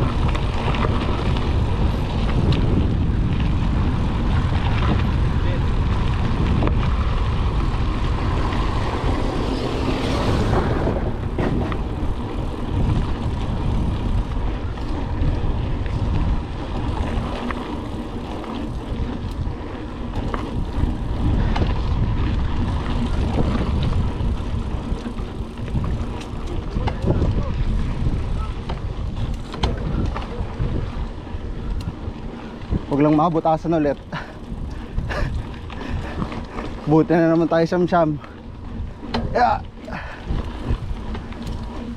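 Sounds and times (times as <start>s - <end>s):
wind buffeting microphone: 0.0s - 41.9s
bike frame clattering: 10.8s - 13.3s.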